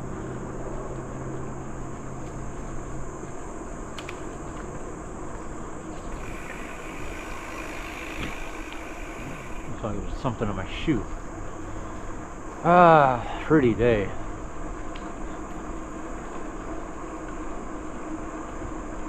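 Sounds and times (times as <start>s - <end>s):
bicycle tyre noise on trail: 0.0s - 19.0s
insects buzzing: 0.0s - 19.0s
lower buzzing: 5.9s - 10.4s.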